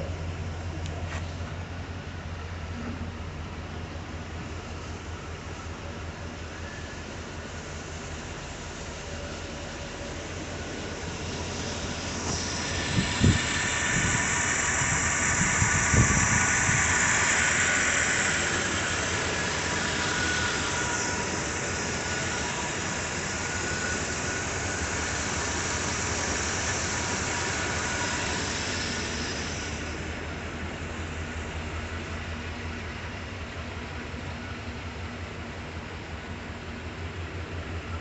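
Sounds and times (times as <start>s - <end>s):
high-pitched engine squeal: 6.4s - 7.2s, 9.0s - 30.4s
car engine idling: 7.4s - 21.8s.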